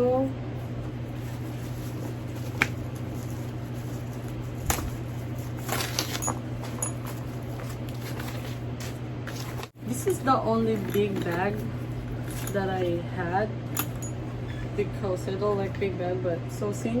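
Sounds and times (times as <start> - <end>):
steady low hum: 0.0 - 17.0
handbag rustling: 0.7 - 13.0.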